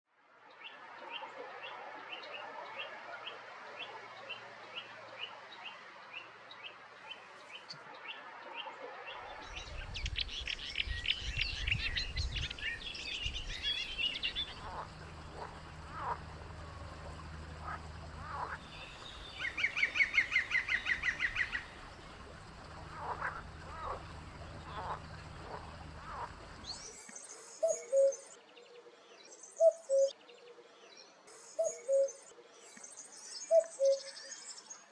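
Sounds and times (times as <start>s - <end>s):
bird trills: 9.4s - 26.8s
high ticking bird notes: 9.5s - 26.8s.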